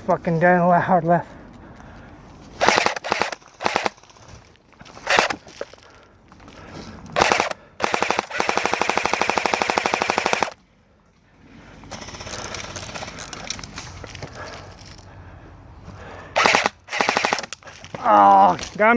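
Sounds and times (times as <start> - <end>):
airsoft gun firing full auto: 2.6 - 4.2, 5.0 - 5.4, 7.2 - 10.6, 16.4 - 17.6.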